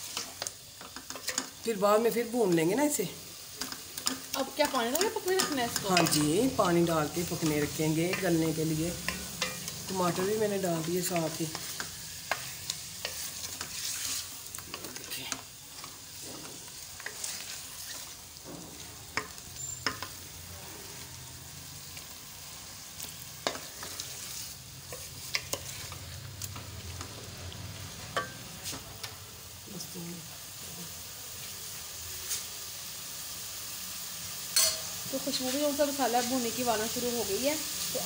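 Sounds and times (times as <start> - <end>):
chicken sizzling in oil: 0.0 - 38.0
wooden spoon scraping pot: 7.2 - 18.2.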